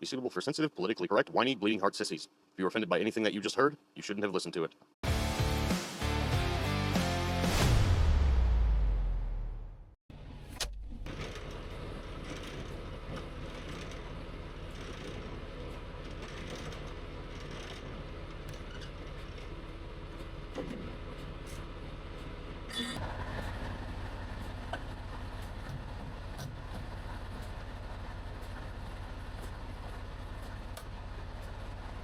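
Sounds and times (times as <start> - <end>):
truck engine rumbling: 9.2 - 32.0
clunk: 20.2 - 21.6.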